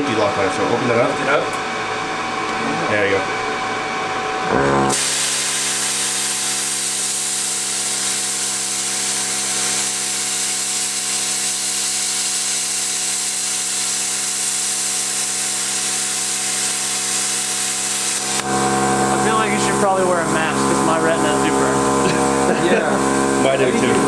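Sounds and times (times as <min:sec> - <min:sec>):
electrical hum: 0:00.0 - 0:24.0
plasma cutter hissing: 0:04.9 - 0:24.0.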